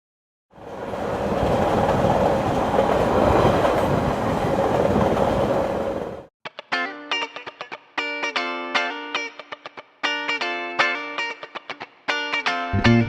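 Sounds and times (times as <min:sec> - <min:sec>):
train running on track: 0:00.5 - 0:06.3.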